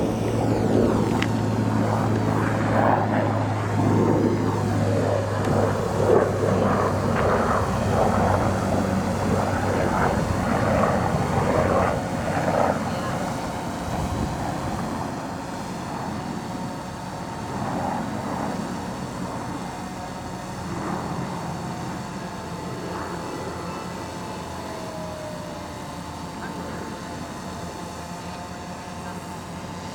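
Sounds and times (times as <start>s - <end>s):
model airplane engine running: 0.0s - 29.9s.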